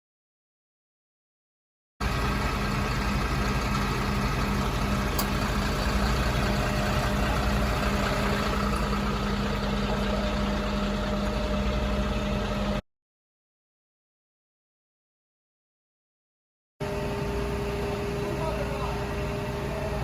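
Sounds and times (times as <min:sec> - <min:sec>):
fire engine idling: 0:02.0 - 0:12.8, 0:16.8 - 0:20.0.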